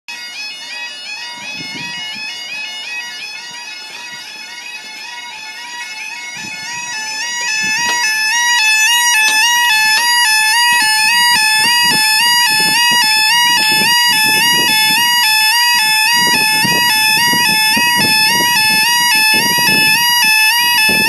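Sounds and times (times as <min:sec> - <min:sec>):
two-tone warbling crossing alarm: 0:00.1 - 0:21.0.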